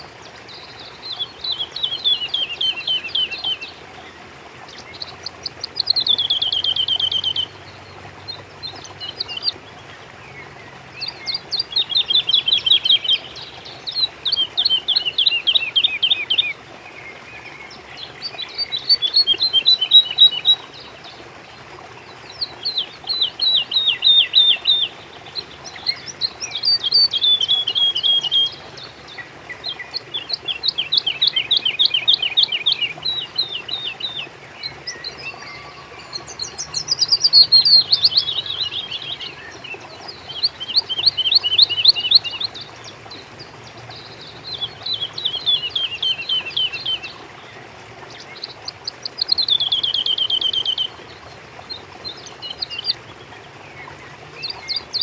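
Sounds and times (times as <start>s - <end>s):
songbird trilling: 1.1s - 3.7s, 4.6s - 9.7s, 11.0s - 16.6s, 18.3s - 20.7s, 22.3s - 42.7s, 44.1s - 47.2s, 48.4s - 51.0s.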